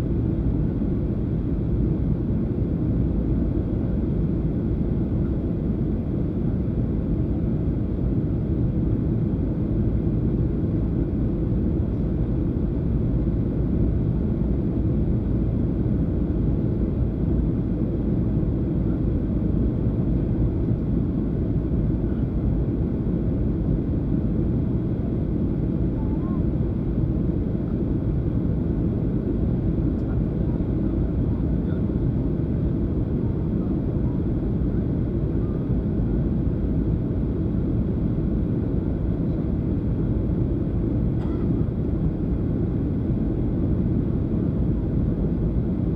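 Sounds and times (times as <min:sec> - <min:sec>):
airplane cabin rumble: 0:13.7 - 0:45.9.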